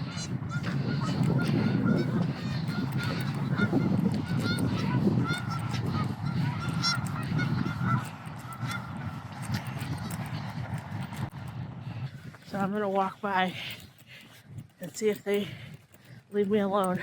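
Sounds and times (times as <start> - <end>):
flock of birds honking: 0.0 - 11.2.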